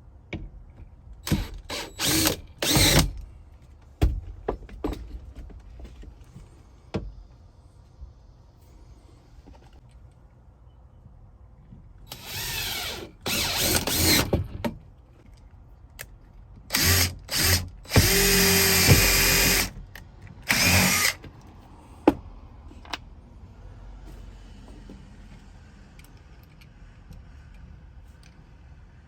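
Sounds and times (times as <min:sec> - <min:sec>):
power drill driving screws: 0:01.3 - 0:03.2, 0:12.1 - 0:14.4, 0:16.7 - 0:19.8, 0:20.4 - 0:21.2.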